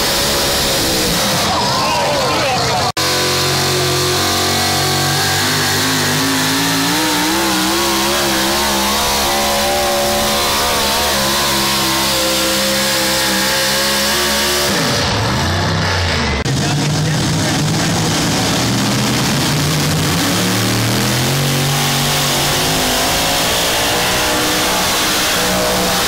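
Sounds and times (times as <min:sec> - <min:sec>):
engine at full throttle: 0:00.0 - 0:26.0.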